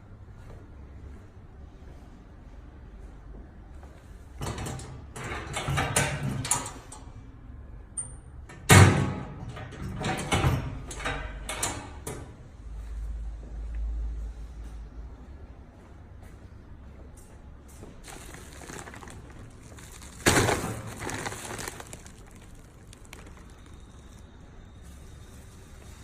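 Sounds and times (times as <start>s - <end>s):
objects knocking and clattering: 18.0s - 23.7s.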